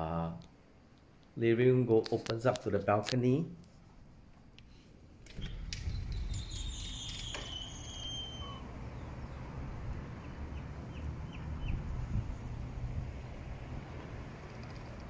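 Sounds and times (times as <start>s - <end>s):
low outdoor rumble: 3.9s - 15.0s
short falling bird chirps: 5.5s - 9.4s
high whistled bird call: 5.8s - 9.4s.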